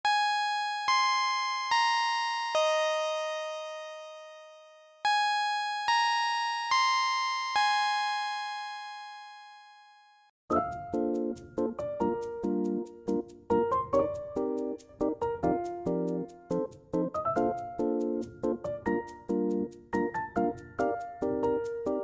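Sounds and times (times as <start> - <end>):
bell-like electric piano jingle: 0.1 - 9.2.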